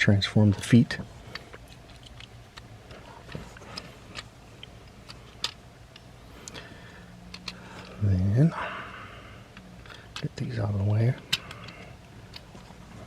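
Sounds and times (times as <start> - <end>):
plastic toy parts clicking: 1.3 - 5.6, 7.3 - 8.0, 11.2 - 12.6.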